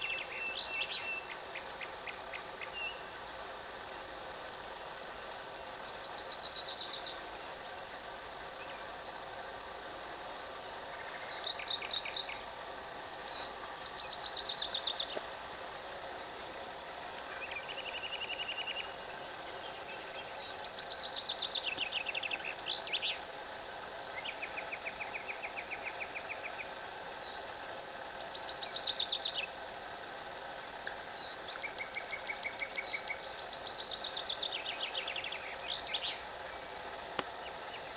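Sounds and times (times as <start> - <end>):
nightingale singing: 0.0 - 3.2, 5.2 - 15.6, 16.5 - 37.9
background hiss: 0.0 - 37.9.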